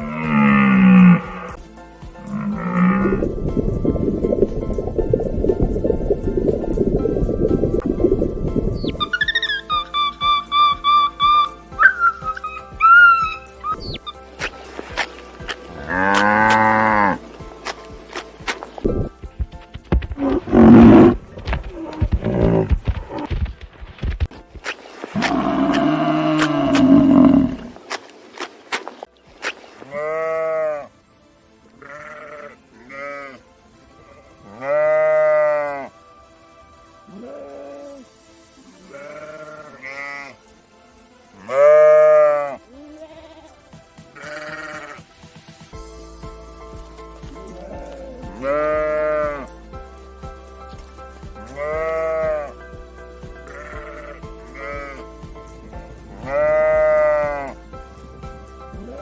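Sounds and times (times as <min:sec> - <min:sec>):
background music with steady beat: 0:00.0 - 0:59.0
sheep bleating: 0:15.8 - 0:17.2, 0:25.2 - 0:27.7, 0:29.8 - 0:30.9, 0:31.8 - 0:33.4, 0:34.1 - 0:36.0, 0:38.8 - 0:40.4, 0:41.4 - 0:45.1, 0:47.4 - 0:49.5, 0:51.4 - 0:52.6, 0:53.4 - 0:55.1, 0:56.2 - 0:57.6.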